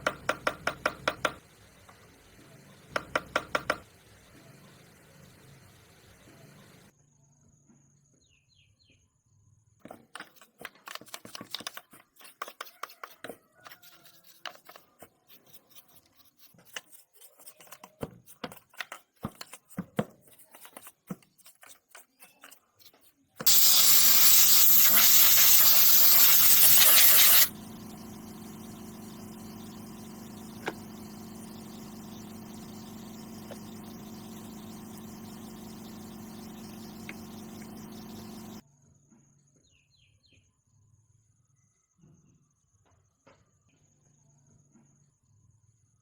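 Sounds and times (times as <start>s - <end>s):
motorcycle engine idling: 24.3s - 38.6s.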